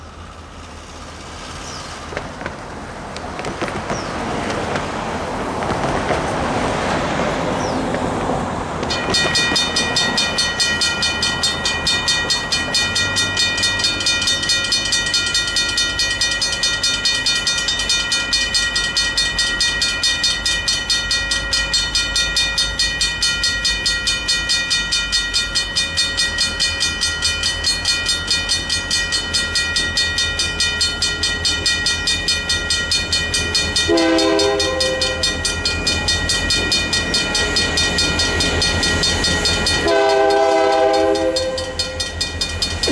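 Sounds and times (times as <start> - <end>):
crossing bells ringing: 0.0 - 42.9
diesel locomotives rumbling: 0.0 - 42.9
locomotive horn: 33.4 - 42.9.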